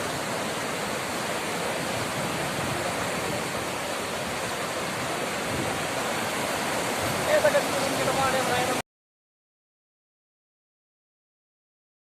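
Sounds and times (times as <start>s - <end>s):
heavy rain rushing: 0.0s - 8.8s.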